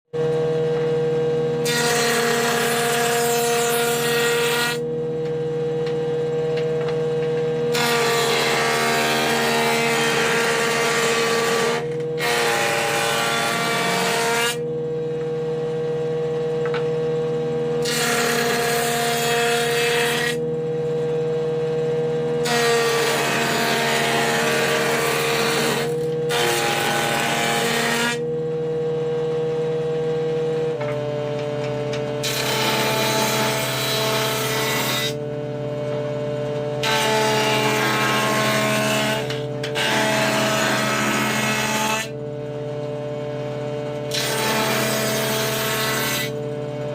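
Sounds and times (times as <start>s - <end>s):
planer cutting wood: 0.2s - 4.9s, 5.8s - 14.7s, 17.7s - 20.6s, 22.3s - 28.3s, 30.8s - 35.3s, 36.7s - 42.2s, 43.9s - 46.9s
wood planer motor hum: 0.2s - 46.9s.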